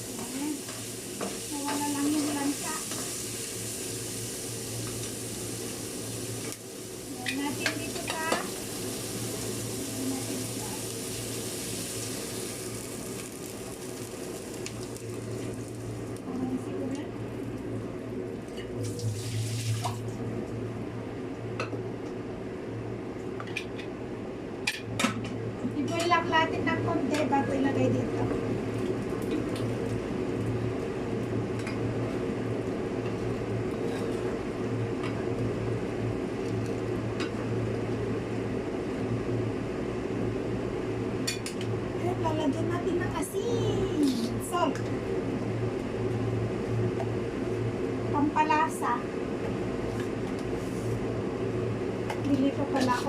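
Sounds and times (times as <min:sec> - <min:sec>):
chicken sizzling in a pot: 0:00.0 - 0:20.1
machine humming: 0:00.0 - 0:21.6
steady low hum: 0:00.0 - 0:53.0.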